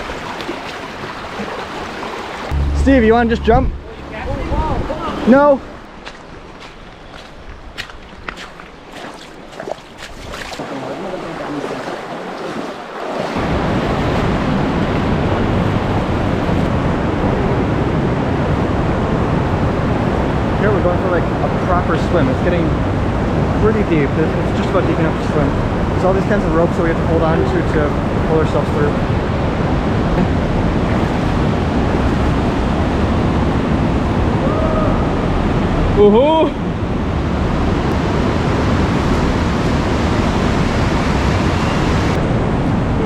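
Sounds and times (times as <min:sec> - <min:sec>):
river water rushing: 0:00.0 - 0:16.8.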